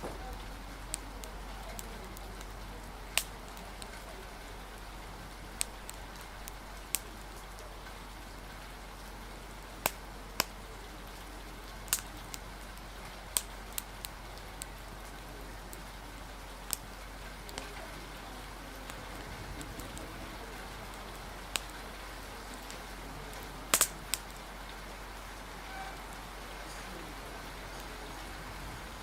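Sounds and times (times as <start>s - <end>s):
sharp pops and crackles: 0.0s - 25.2s
rain and wind hiss: 0.0s - 29.0s.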